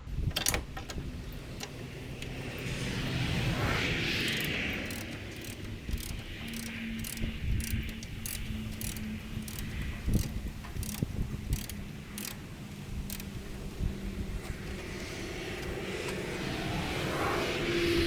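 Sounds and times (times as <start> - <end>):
ratchet wrench clicking: 4.2 - 15.8.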